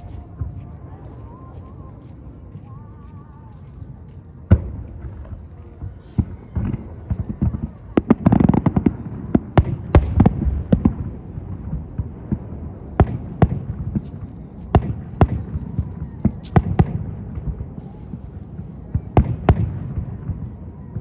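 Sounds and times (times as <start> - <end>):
fireworks bangs: 4.5 - 21.0.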